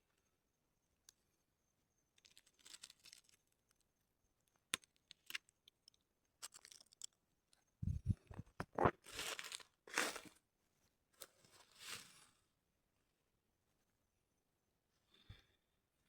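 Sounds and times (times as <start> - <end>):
soft crinkling and rustling: 2.1 - 3.9, 4.8 - 10.4, 11.1 - 12.4.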